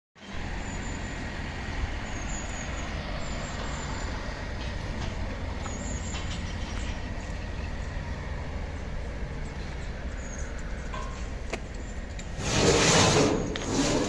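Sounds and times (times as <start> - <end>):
diesel engine rumbling: 0.2 - 14.0.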